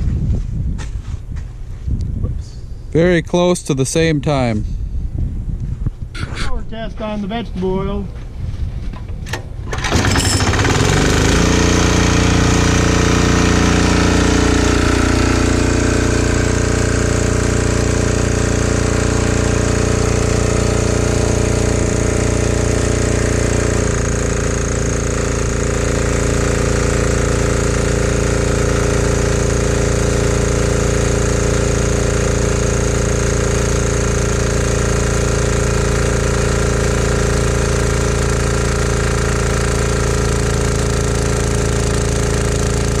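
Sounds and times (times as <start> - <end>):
diesel generator engine running: 9.0 - 43.0.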